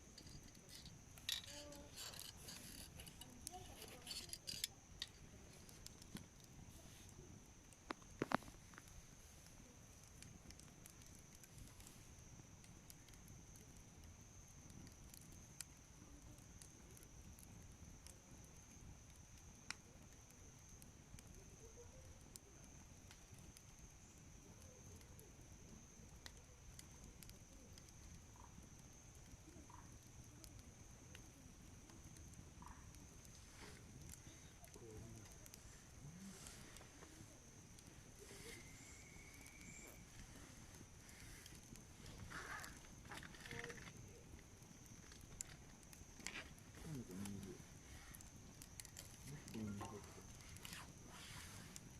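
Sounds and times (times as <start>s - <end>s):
campfire crackling and popping: 0.0s - 51.9s
low fire rumble: 0.0s - 51.9s
faint steady high tone: 38.1s - 40.7s.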